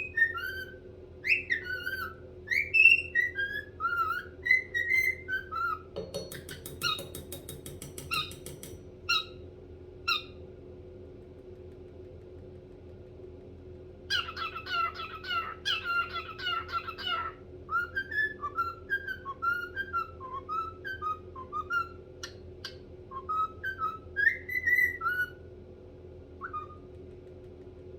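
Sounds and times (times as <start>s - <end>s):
cockatiel whistling: 0.0s - 5.9s, 14.1s - 25.4s, 26.4s - 26.9s
cockatiel chirping: 0.0s - 7.4s, 8.0s - 9.4s, 10.1s - 10.4s, 14.1s - 25.4s, 26.4s - 26.9s.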